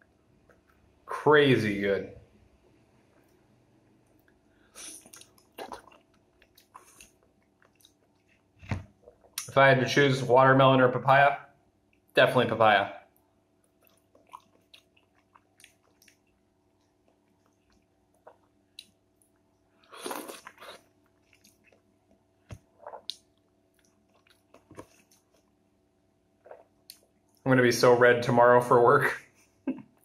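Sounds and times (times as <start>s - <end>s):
quiet wet chewing: 0.4s - 1.0s, 3.0s - 9.5s, 13.1s - 25.6s, 26.4s - 27.5s.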